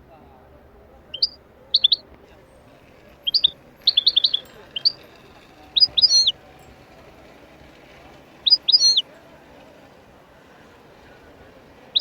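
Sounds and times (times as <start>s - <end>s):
small bird chirping: 1.1s - 2.0s, 3.2s - 6.4s, 8.4s - 9.1s.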